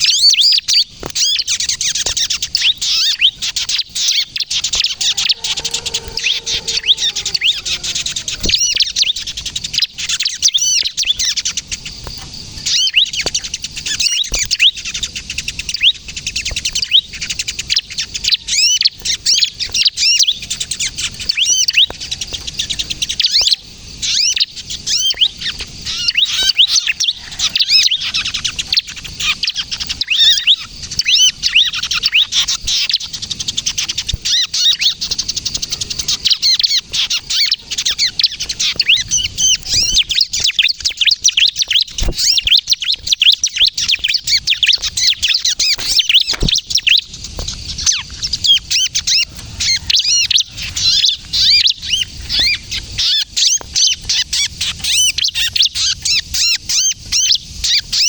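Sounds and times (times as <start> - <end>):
bird giving rapid high chirps: 0.0 - 56.8.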